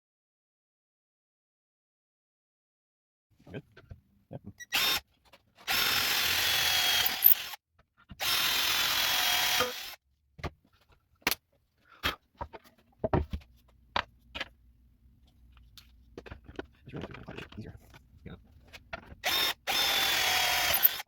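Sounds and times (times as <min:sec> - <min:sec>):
power tool hissing and whining: 0:05.7 - 0:07.6, 0:19.2 - 0:21.0.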